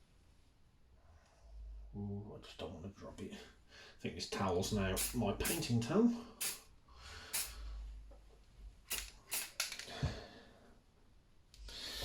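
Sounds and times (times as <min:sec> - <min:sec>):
spray paint can hissing: 0:05.0 - 0:05.6, 0:06.4 - 0:06.6, 0:07.4 - 0:07.6, 0:08.9 - 0:09.8.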